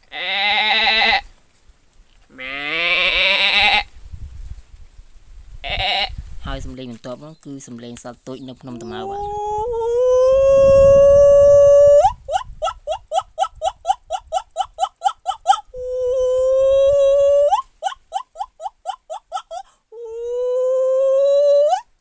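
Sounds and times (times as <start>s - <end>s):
person imitating animal call: 0.0s - 1.2s, 2.3s - 3.9s, 8.6s - 22.0s.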